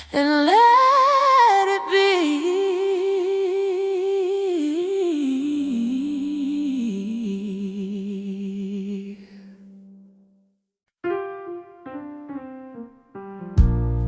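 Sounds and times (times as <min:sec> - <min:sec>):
soul song: 0:00.0 - 0:09.6.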